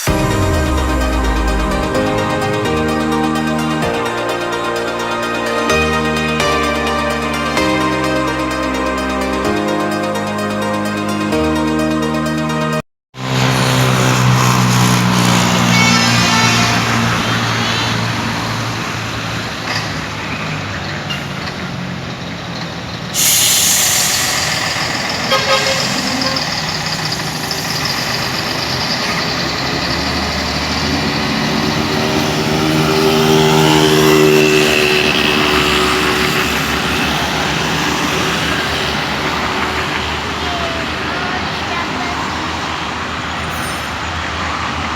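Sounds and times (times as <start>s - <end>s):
diesel truck engines: 0.0s - 44.9s
truck passing by: 0.0s - 44.9s
air brake hiss: 23.1s - 29.4s.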